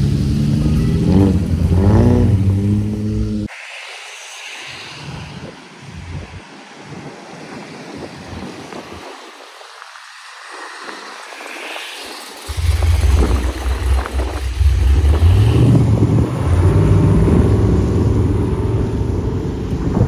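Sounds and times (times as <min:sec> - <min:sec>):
steady hiss: 0:03.4 - 0:06.8
car engine running: 0:12.5 - 0:20.0.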